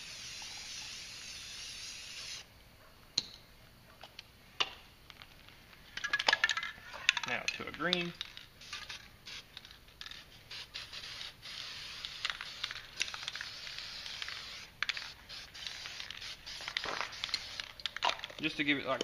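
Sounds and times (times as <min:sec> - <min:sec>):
aerosol spray can hissing: 0:00.0 - 0:02.5, 0:08.6 - 0:09.6, 0:10.2 - 0:18.0.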